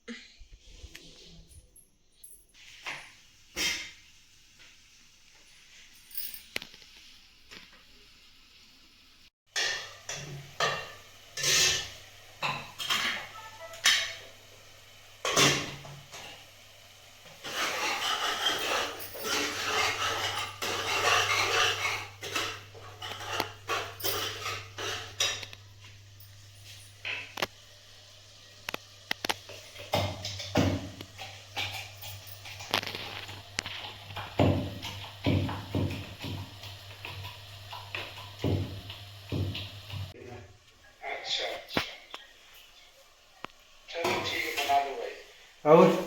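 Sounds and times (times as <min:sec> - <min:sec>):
pots and pans clattering: 0:09.5 - 0:14.5, 0:15.1 - 0:16.5, 0:17.2 - 0:27.5, 0:28.7 - 0:40.2.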